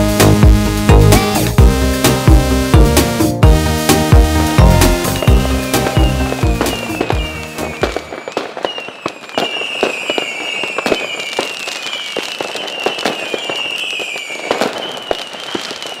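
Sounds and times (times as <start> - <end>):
background music: 0.0 - 8.2
fireworks crackling and popping: 0.0 - 16.0
falling whistle: 5.0 - 16.0.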